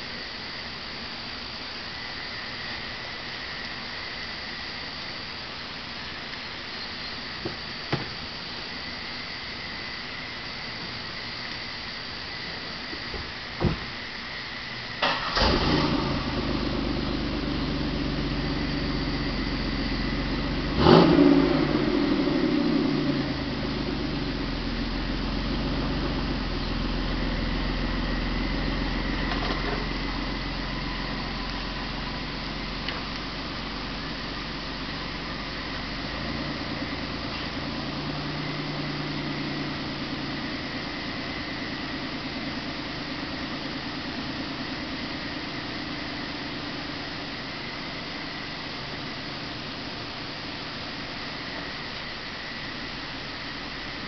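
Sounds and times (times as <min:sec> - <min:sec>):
car engine starting and idling: 0:09.8 - 0:54.0
sharp thump: 0:13.1 - 0:13.9.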